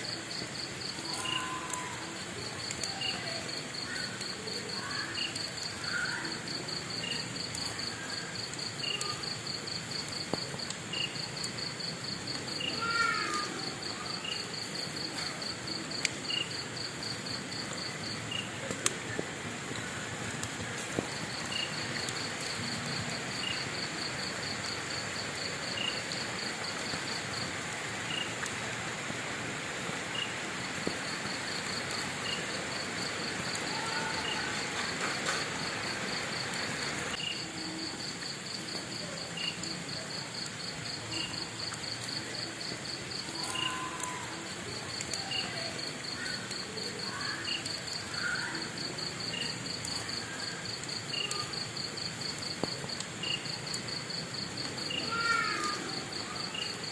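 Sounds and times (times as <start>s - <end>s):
insects trilling: 0.0s - 56.9s
slower insect chirp: 0.0s - 56.9s
steady hiss: 0.0s - 56.9s.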